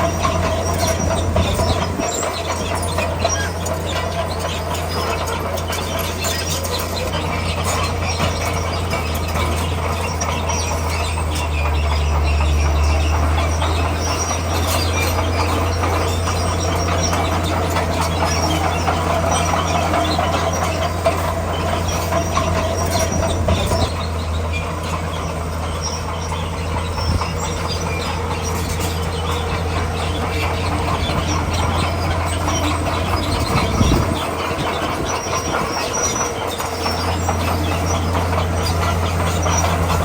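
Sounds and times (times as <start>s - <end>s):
bulldozer diesel engine drone: 0.0s - 40.0s
steel tracks squealing and clanking: 0.0s - 40.0s.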